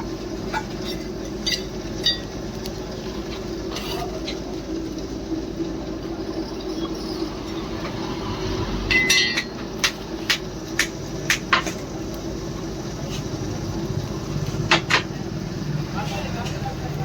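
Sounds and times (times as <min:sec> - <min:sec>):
steady low hum: 0:00.0 - 0:17.0
hammer striking steel: 0:08.9 - 0:11.7.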